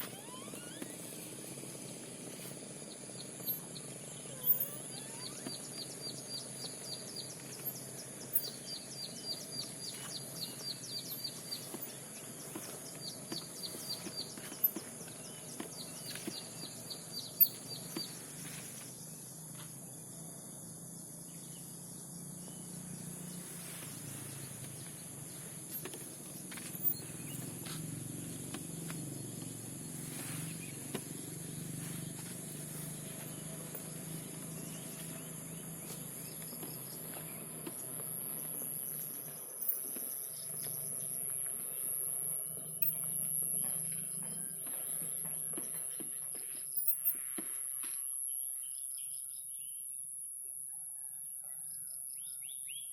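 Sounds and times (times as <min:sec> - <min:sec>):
birds chirping rapidly: 0:00.0 - 0:19.1, 0:22.2 - 0:47.0
high insect buzz: 0:00.0 - 0:19.6.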